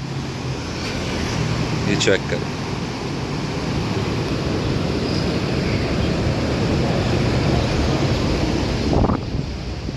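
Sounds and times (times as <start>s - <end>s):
river rushing: 0.0s - 9.9s
wind buffeting microphone: 3.8s - 9.9s.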